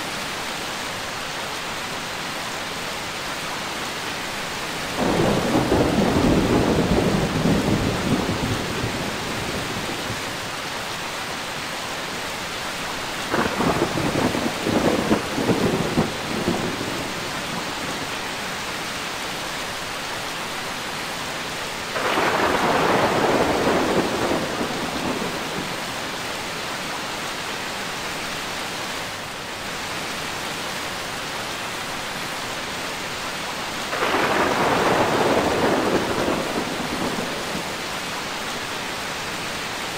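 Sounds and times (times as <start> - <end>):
steady rain hiss: 0.0 - 39.9
thunder: 5.0 - 10.3, 13.3 - 18.0, 21.9 - 25.9, 33.9 - 37.8.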